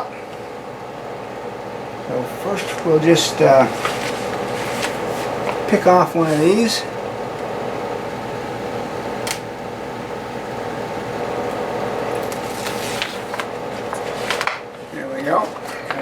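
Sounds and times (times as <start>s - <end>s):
fan humming: 0.0s - 16.0s
vinyl strip peeling: 2.6s - 14.5s.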